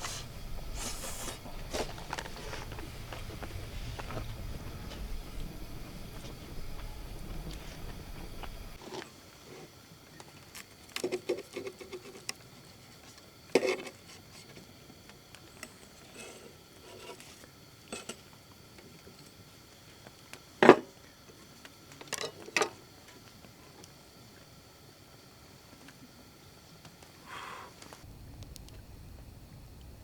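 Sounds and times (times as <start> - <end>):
faint rustling: 0.0 - 8.8.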